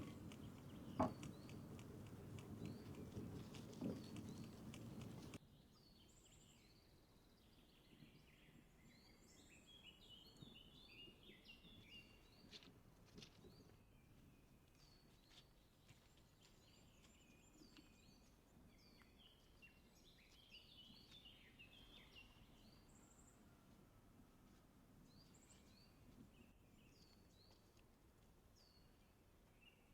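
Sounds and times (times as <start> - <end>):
songbirds chirping and trilling: 0.0 - 6.7.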